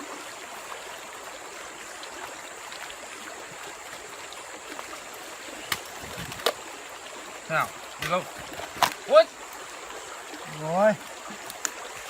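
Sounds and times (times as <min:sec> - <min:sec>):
stream water rushing: 0:00.0 - 0:12.0
faint small clicks: 0:11.4 - 0:11.8.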